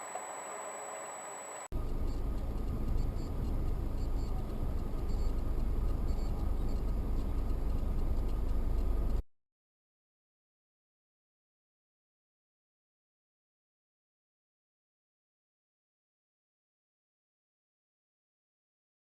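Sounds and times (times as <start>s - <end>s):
faint regular ticking: 1.7s - 9.2s.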